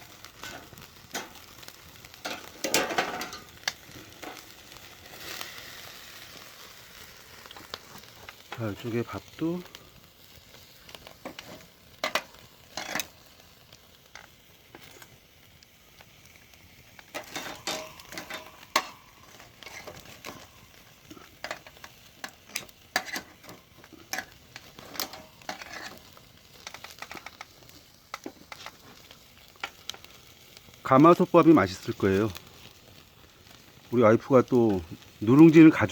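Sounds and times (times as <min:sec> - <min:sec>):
food sizzling over fire: 0:00.0 - 0:35.9
metal utensils clinking on cookware: 0:02.2 - 0:03.5, 0:11.3 - 0:13.1, 0:17.1 - 0:20.5, 0:21.4 - 0:26.0.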